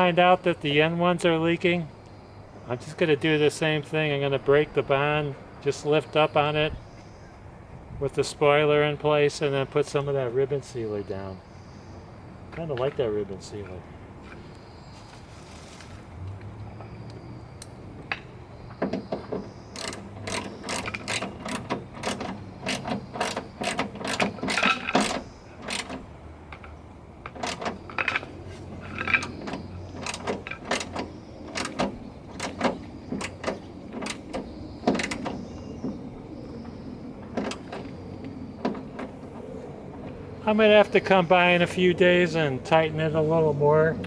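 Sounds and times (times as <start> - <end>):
ratchet wrench clicking: 19.8 - 26.0, 30.0 - 34.3.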